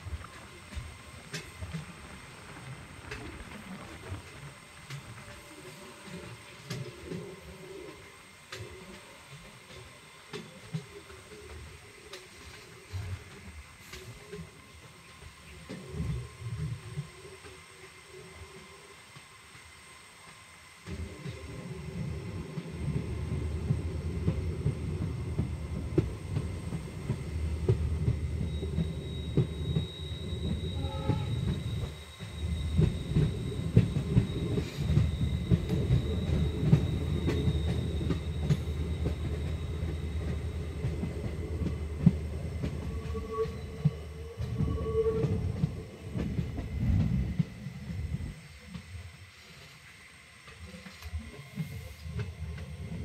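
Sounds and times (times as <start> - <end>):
train wheels rumbling on rails: 0.0 - 53.0
train clattering and knocking: 20.8 - 48.9
high-pitched wheel squeal: 28.4 - 41.0, 42.5 - 45.6.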